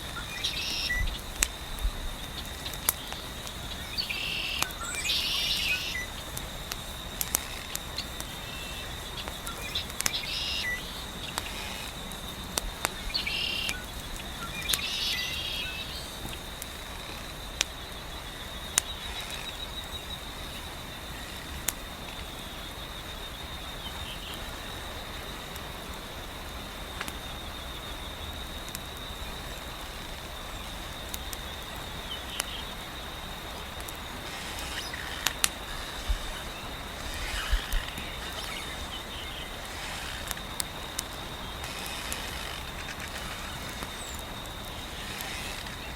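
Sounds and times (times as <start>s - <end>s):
fire crackling and popping: 0.0s - 45.9s
high insect trill: 0.0s - 45.9s
wind hiss: 0.0s - 45.9s
bird chirps: 13.1s - 16.1s.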